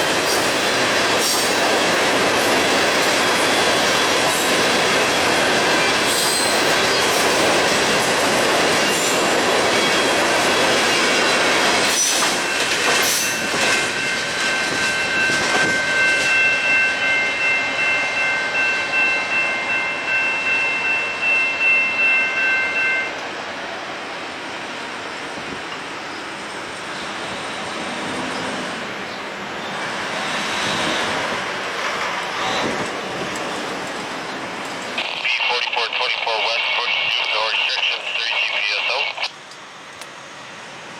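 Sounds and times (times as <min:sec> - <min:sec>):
train railcars rolling past: 0:00.0 - 0:35.3
wheels clacking over rail joints: 0:00.2 - 0:16.4
high wheel squeal: 0:06.1 - 0:06.7.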